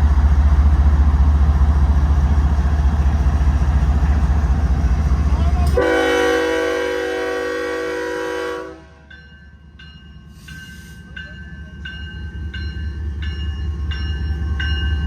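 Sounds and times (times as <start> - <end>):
train rumble: 0.0 - 15.0
locomotive air horn: 5.7 - 9.1
crossing bell ringing: 9.0 - 15.0.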